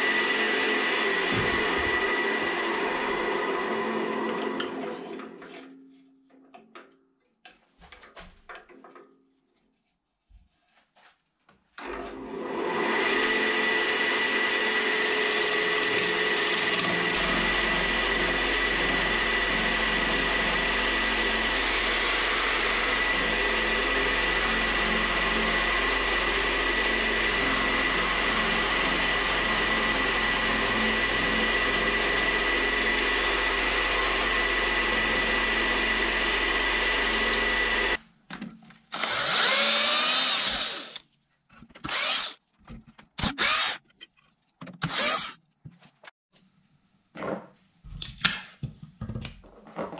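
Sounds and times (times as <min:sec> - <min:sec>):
turning tool cutting log: 0:00.0 - 0:05.2, 0:13.0 - 0:38.0, 0:38.9 - 0:41.0, 0:41.8 - 0:42.4, 0:43.1 - 0:44.0, 0:44.8 - 0:45.4
wood lathe whining: 0:00.0 - 0:05.5, 0:11.8 - 0:38.0, 0:38.9 - 0:41.0, 0:41.8 - 0:42.4, 0:43.2 - 0:43.8, 0:44.8 - 0:45.4
drill driving a screw: 0:14.6 - 0:38.0, 0:38.9 - 0:41.0, 0:41.8 - 0:42.4, 0:43.2 - 0:43.8, 0:44.8 - 0:45.4.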